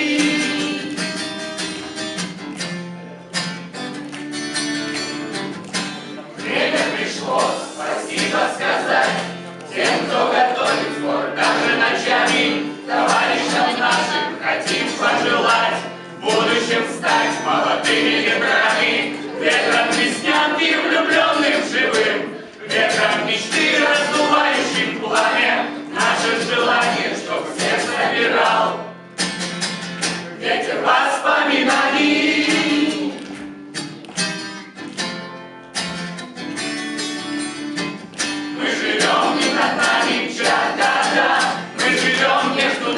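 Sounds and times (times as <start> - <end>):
group of people singing: 0.0 - 1.4, 6.4 - 29.0, 30.2 - 33.4, 38.4 - 42.9
instrumental backing music: 0.0 - 42.9.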